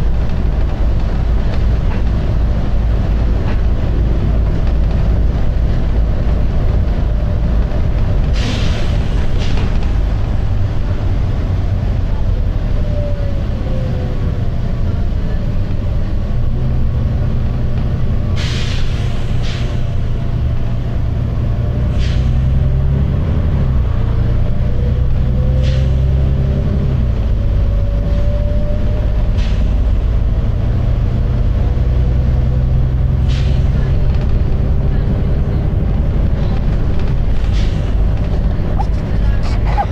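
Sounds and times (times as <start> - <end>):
bus engine rumble with whine: 0.0 - 39.9
air brake hisses: 8.4 - 9.6, 18.4 - 19.9, 21.9 - 22.4.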